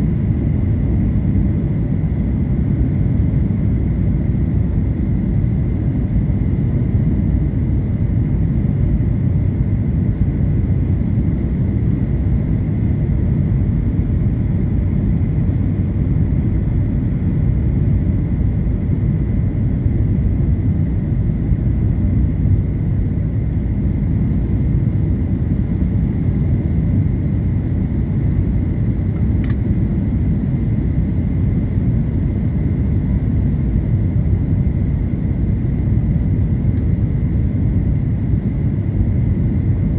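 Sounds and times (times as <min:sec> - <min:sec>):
airliner cabin engine rumble: 0:00.0 - 0:39.9
faint click: 0:29.2 - 0:29.6.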